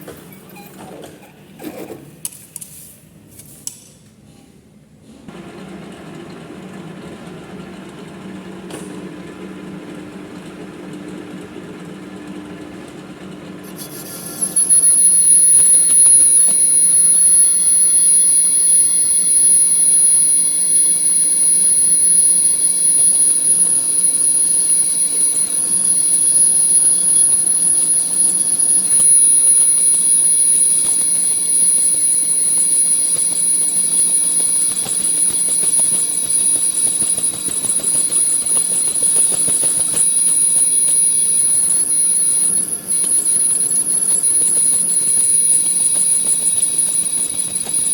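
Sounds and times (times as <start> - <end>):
high-pitched cutting squeal: 13.6 - 47.9
metal lathe running: 13.6 - 47.9.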